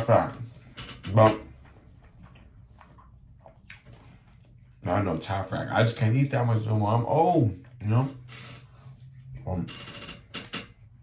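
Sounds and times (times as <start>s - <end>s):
man chewing food: 1.6s - 4.8s.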